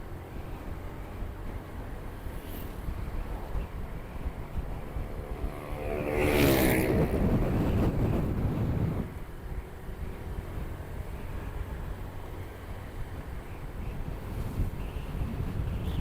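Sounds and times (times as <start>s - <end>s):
motorcycle road rumble: 0.0s - 16.0s
wind buffeting microphone: 0.0s - 16.0s
vehicle passing by: 4.6s - 9.1s.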